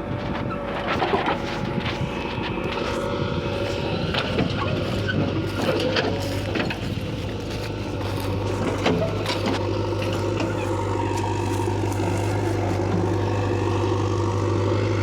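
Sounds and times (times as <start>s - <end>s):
deep steady hum: 0.0s - 15.0s
heavy diesel machinery running: 0.0s - 15.0s.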